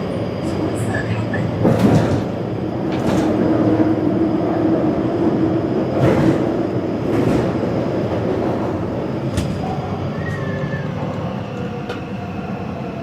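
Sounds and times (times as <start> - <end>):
metro train rumbling: 0.0 - 13.0
wheels clacking on track: 0.4 - 4.6, 5.8 - 10.4.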